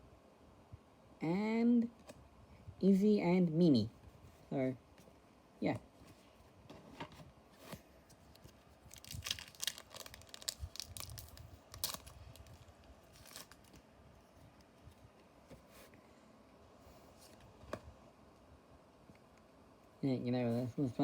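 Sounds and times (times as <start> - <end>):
quiet handling of wrapper: 7.6 - 16.0
foil pack tearing and crinkling: 8.9 - 13.8.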